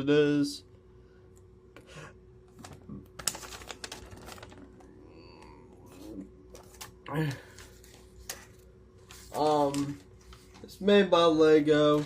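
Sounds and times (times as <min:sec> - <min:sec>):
paper and packaging rustling: 0:02.5 - 0:05.0, 0:05.8 - 0:12.0.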